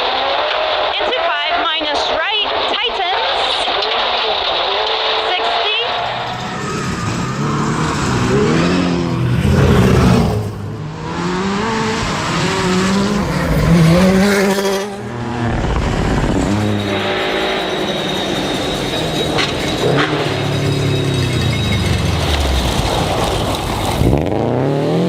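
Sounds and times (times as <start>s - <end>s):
car engine revving hard: 5.9s - 25.0s.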